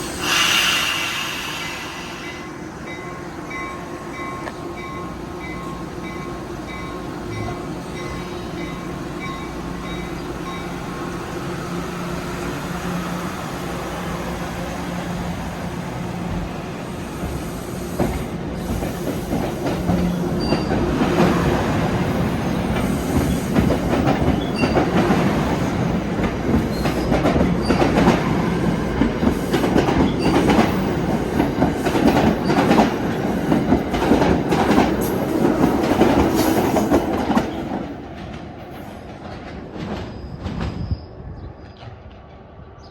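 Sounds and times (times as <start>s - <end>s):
train passing with low hum: 0.0s - 42.9s.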